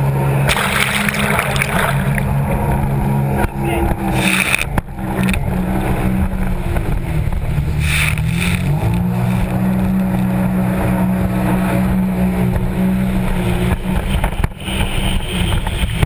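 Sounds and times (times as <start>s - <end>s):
jet ski engine running: 0.0s - 16.0s.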